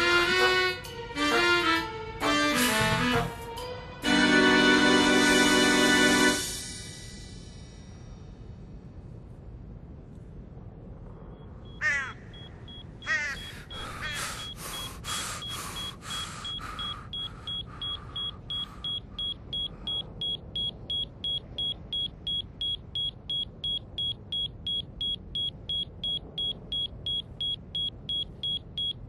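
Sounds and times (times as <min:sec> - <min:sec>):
short chirpy bursts: 0:12.4 - 0:21.7.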